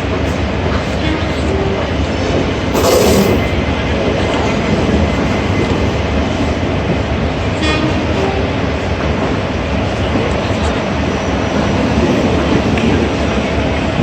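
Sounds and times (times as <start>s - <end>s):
train wheels rumbling on rails: 0.0s - 14.0s
short hiss: 2.8s - 3.5s.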